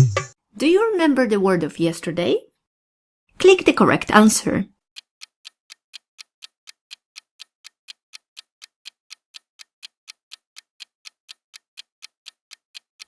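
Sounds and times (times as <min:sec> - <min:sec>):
clock ticking: 0:03.4 - 0:13.0.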